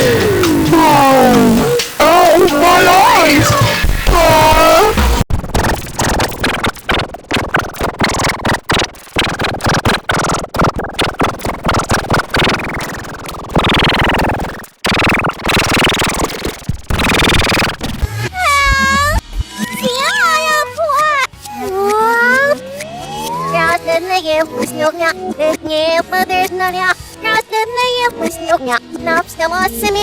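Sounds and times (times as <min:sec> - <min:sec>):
distorted stuttering cartoon audio: 0:00.0 - 0:20.4.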